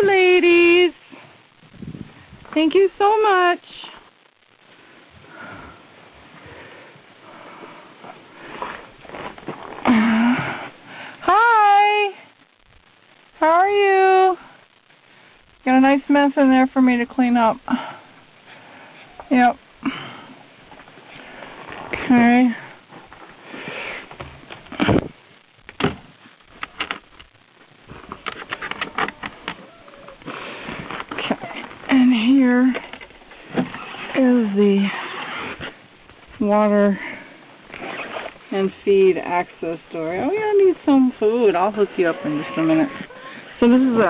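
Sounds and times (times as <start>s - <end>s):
hens rustling and pecking: 26.2s - 34.4s, 38.2s - 44.0s.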